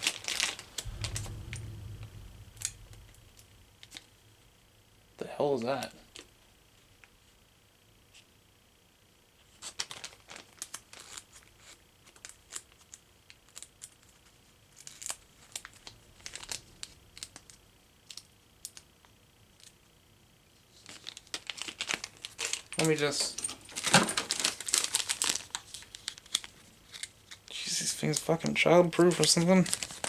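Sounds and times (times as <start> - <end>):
plastic packaging crinkling: 21.5 - 27.1.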